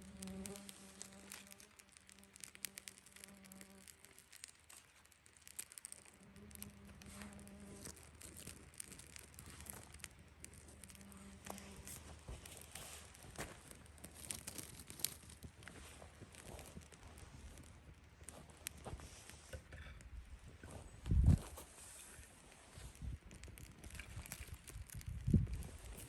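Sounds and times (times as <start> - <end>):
flying insect buzzing: 0.0 - 3.9, 6.1 - 8.0
faint clicks and crackles: 0.0 - 26.0.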